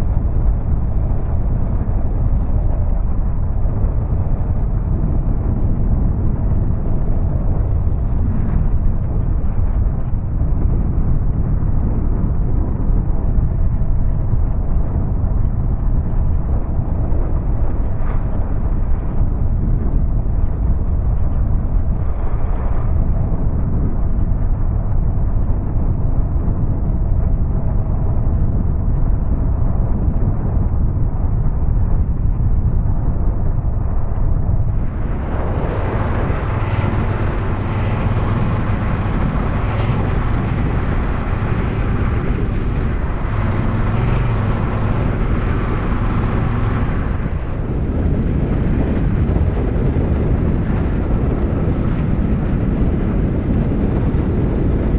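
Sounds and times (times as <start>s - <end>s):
wind rushing over microphone: 0.0s - 54.9s
motorcycle engine running: 34.7s - 50.6s.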